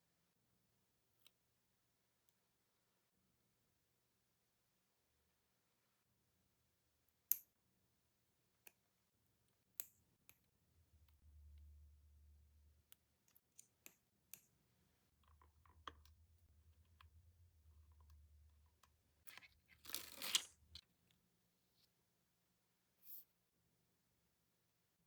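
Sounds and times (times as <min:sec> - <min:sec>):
clicks and taps of small tools: 0:12.9 - 0:16.2.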